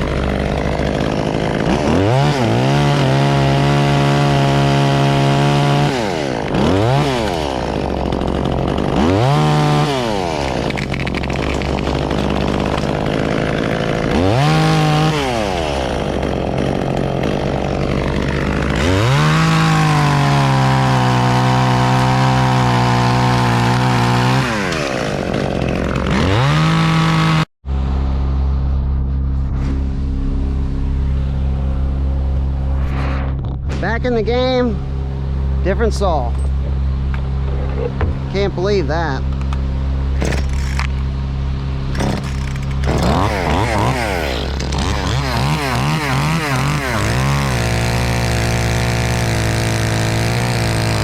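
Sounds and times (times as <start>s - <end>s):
chainsaw revving: 0.0s - 27.5s, 41.9s - 51.0s
low engine hum: 27.6s - 43.0s.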